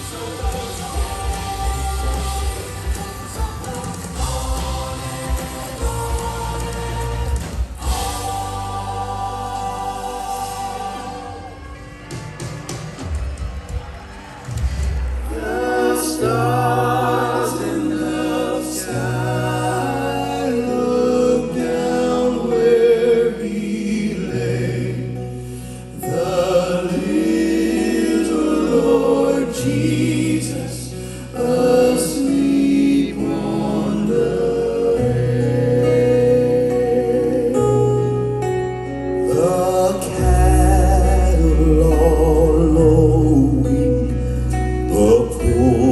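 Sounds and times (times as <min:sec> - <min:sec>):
gospel choir singing: 0:00.0 - 0:14.0, 0:14.7 - 0:45.9
band accompaniment: 0:00.0 - 0:22.2.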